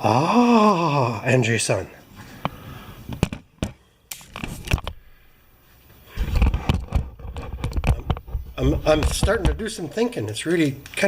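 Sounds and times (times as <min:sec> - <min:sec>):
tools clicking and scraping: 0:06.3 - 0:09.6.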